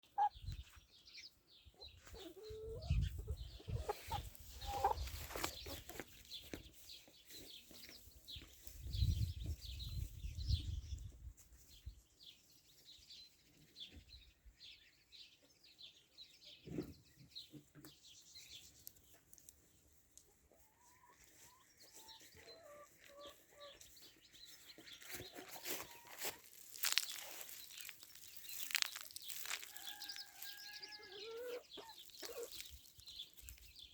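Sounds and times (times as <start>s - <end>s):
chickens clucking: 0.0s - 0.6s, 1.8s - 6.6s, 20.1s - 27.5s, 28.1s - 33.0s.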